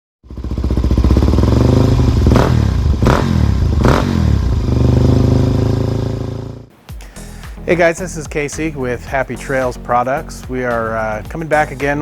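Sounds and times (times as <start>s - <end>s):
motorcycle engine idling: 0.2s - 6.6s.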